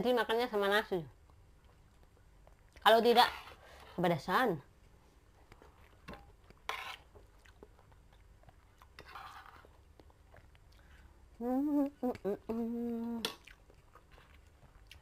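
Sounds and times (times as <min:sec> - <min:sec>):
close-up chewing: 0:01.2 - 0:02.9, 0:05.4 - 0:15.0
person humming: 0:11.3 - 0:13.4.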